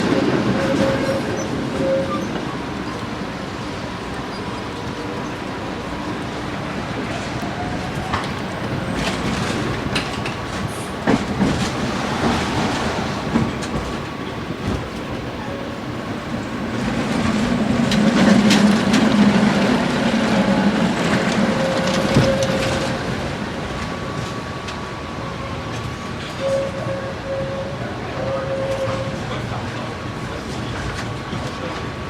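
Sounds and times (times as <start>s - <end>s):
tram rumbling on rails: 0.0s - 32.0s
wheels clicking on track: 7.4s - 20.0s.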